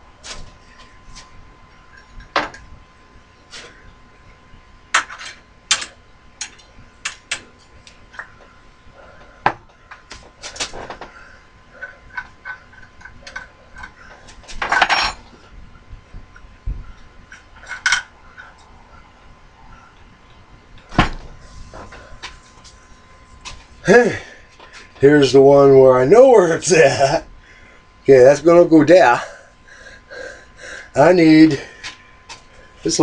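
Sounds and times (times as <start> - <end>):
metal tools clinking: 14.6 - 15.3.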